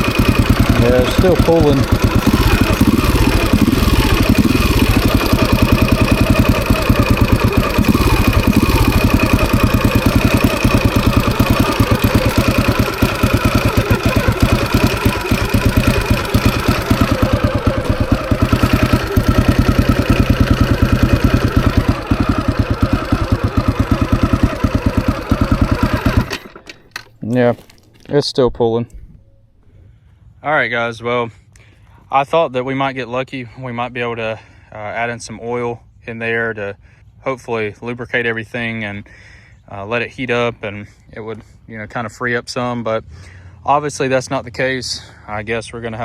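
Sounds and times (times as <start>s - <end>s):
dirt bike engine running: 0.0s - 27.0s.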